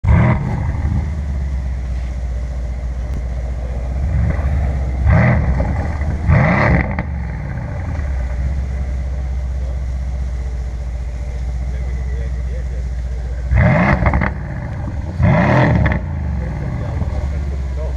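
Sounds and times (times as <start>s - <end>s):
car engine idling burble: 0.0s - 17.9s
car engine revving: 0.0s - 17.9s.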